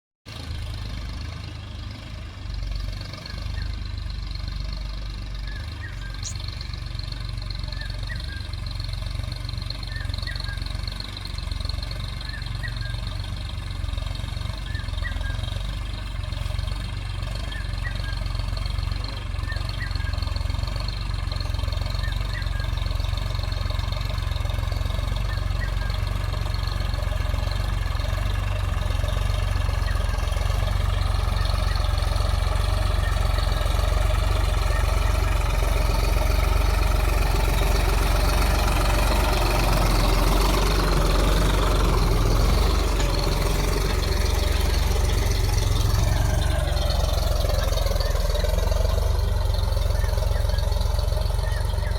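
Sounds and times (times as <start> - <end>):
tractor diesel engine running: 0.2 - 51.9
faint short chirp: 5.4 - 6.6.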